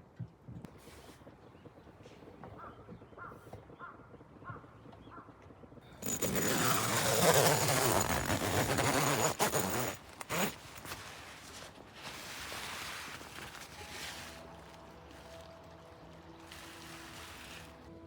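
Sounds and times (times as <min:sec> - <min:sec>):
fabric rustling: 0:06.0 - 0:18.0.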